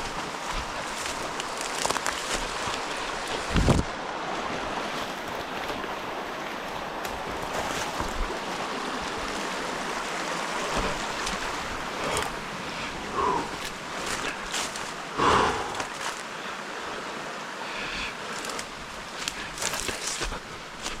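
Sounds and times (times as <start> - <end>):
wind on microphone: 3.2 - 4.0.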